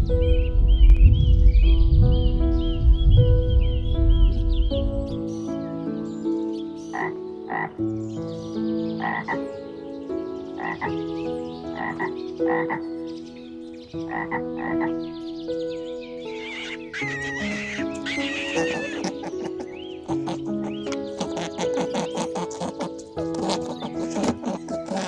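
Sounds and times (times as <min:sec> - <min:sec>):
soft background music: 0:00.0 - 0:25.0
frog croaking: 0:06.9 - 0:07.8, 0:09.0 - 0:09.5, 0:10.6 - 0:10.9, 0:11.8 - 0:12.9, 0:14.1 - 0:14.9, 0:16.4 - 0:25.0.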